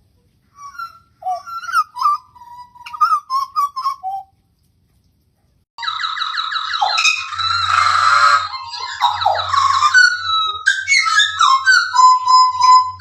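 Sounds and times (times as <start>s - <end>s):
bird singing fluting notes: 0.6s - 4.2s, 6.8s - 13.0s
harsh rasping bird call: 0.6s - 4.2s, 6.8s - 13.0s.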